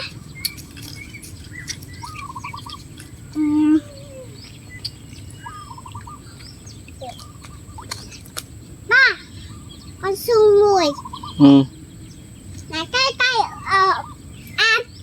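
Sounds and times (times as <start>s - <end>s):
bird call with trill: 0.0s - 8.2s
faint high chirps: 0.0s - 8.3s
low steady bird call: 0.0s - 15.0s.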